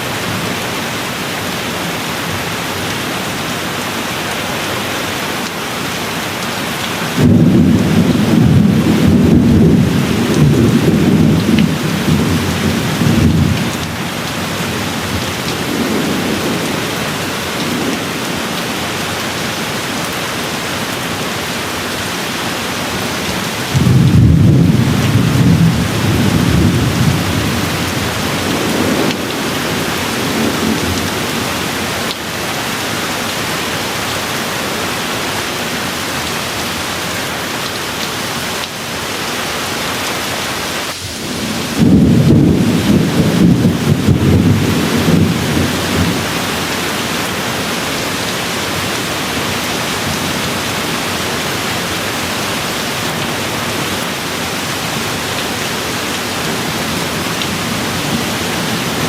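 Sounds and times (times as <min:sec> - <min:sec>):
steady rain falling: 0:00.0 - 0:59.0
distant thunder rolling: 0:07.2 - 0:13.8, 0:23.7 - 0:31.5, 0:41.0 - 0:46.7.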